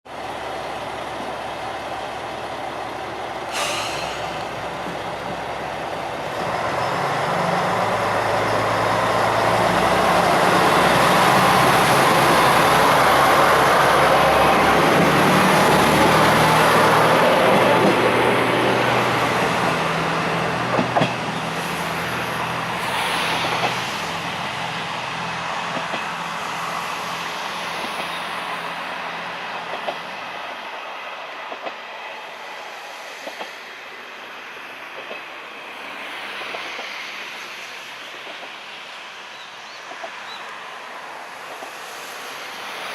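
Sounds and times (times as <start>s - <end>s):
train engine humming: 0.1s - 42.9s
train wheels clacking on rail joints: 20.6s - 21.3s.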